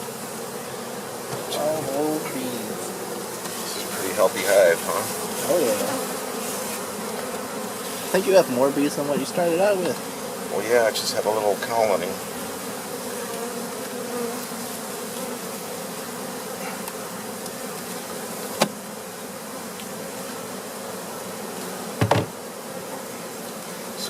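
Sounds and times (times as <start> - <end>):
honey bees buzzing: 0.0 - 24.0
knock on hive: 1.2 - 2.2, 9.0 - 10.1, 18.5 - 18.8, 21.9 - 22.5.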